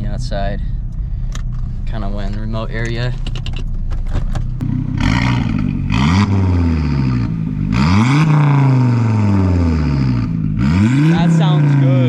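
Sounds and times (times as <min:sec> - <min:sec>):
car engine revving: 0:01.8 - 0:12.0.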